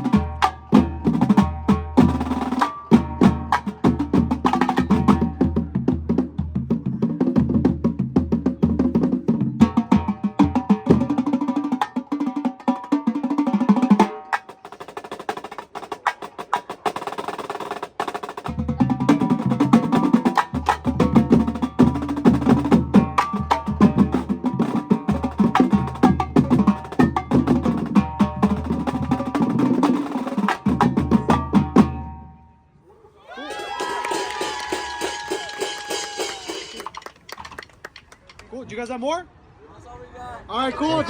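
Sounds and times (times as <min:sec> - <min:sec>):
bass drums: 0:00.0 - 0:11.5, 0:18.4 - 0:32.2
snare and tenor drums: 0:00.0 - 0:32.2.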